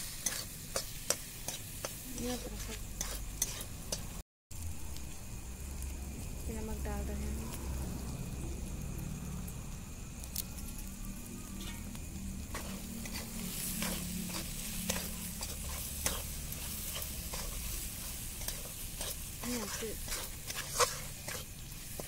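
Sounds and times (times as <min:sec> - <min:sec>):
metal spatula scraping a pan: 0:00.0 - 0:04.2, 0:11.5 - 0:22.0
sauce sizzling in oil: 0:00.0 - 0:22.0.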